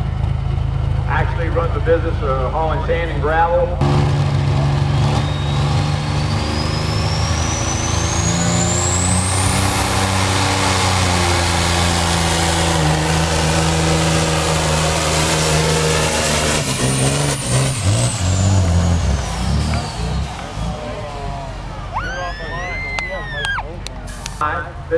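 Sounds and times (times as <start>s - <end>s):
diesel truck engine under load: 0.0s - 24.9s
turbocharger whistle: 4.8s - 10.1s, 21.9s - 23.6s.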